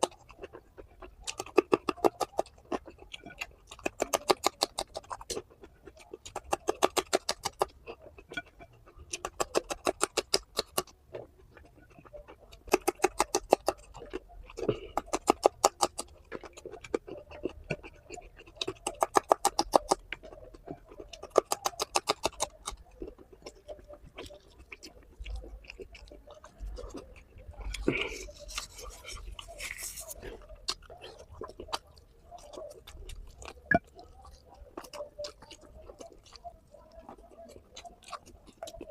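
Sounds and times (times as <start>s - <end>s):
eating crunch: 0.0s - 38.9s
person eating wet clicking: 0.0s - 38.9s.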